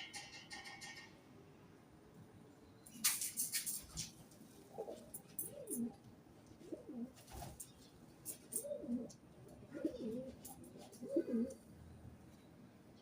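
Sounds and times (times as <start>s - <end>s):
bird cooing: 4.7s - 6.0s, 6.6s - 7.2s, 8.3s - 11.6s.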